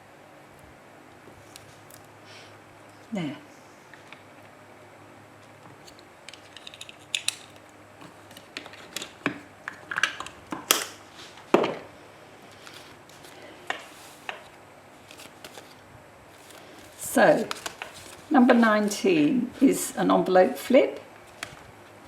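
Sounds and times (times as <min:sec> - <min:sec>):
paper rustling: 0:12.4 - 0:19.0.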